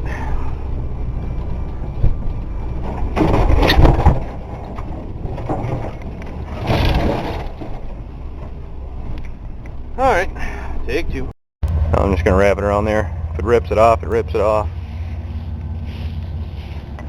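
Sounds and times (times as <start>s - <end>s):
truck engine running: 0.0s - 17.0s
truck crashing through brush: 2.7s - 8.6s.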